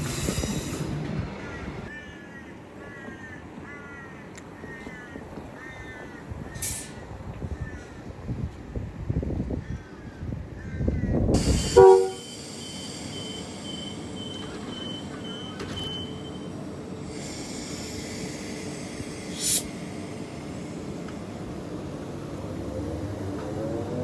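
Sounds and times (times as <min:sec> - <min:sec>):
train rumbling: 0:00.0 - 0:24.0
short sharp hiss: 0:11.4 - 0:13.1, 0:17.1 - 0:20.1
train horn toot: 0:11.6 - 0:12.8.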